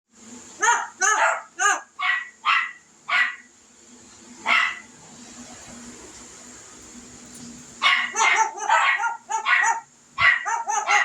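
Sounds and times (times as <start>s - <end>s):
low steady hum: 0.1s - 11.0s
parrot barking: 0.6s - 3.5s, 4.5s - 4.9s, 7.8s - 11.0s.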